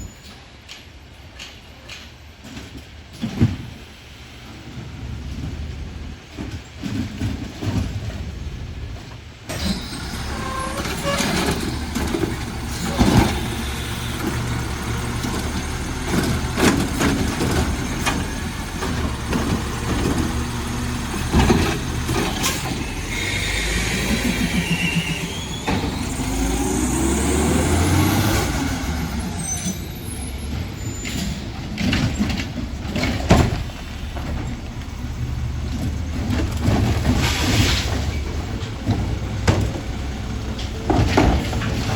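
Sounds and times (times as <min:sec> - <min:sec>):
garbage truck engine running: 0:04.3 - 0:41.9
loud knocks and clanks: 0:10.0 - 0:23.2, 0:31.1 - 0:41.9
air brakes hissing: 0:22.2 - 0:27.0, 0:27.9 - 0:32.2.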